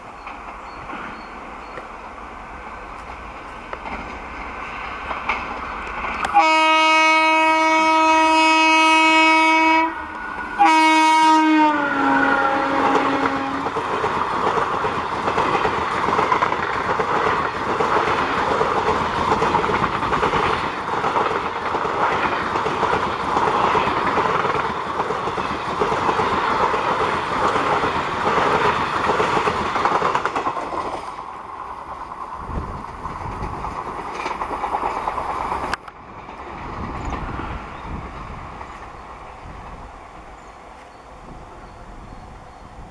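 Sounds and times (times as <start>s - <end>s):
train wheels clattering on rails: 0.0s - 42.9s
train horn blast: 6.2s - 13.8s, 37.2s - 42.9s.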